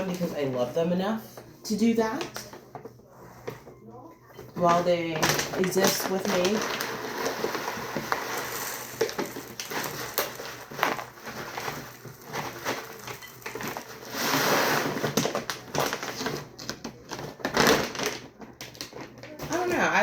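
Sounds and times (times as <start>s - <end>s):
dry rustling and crunching: 4.6s - 20.0s.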